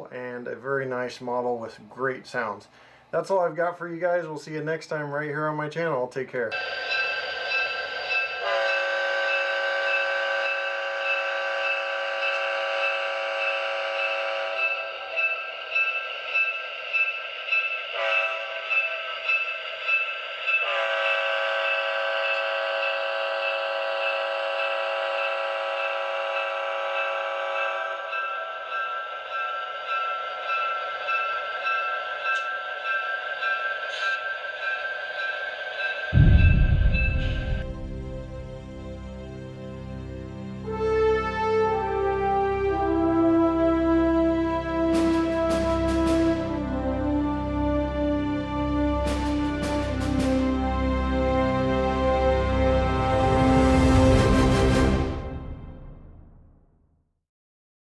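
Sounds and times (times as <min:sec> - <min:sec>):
locomotive bell ringing: 0:06.5 - 0:38.6
diesel air horn blasts: 0:08.4 - 0:14.9, 0:18.0 - 0:18.6, 0:20.6 - 0:27.7, 0:40.6 - 0:55.4.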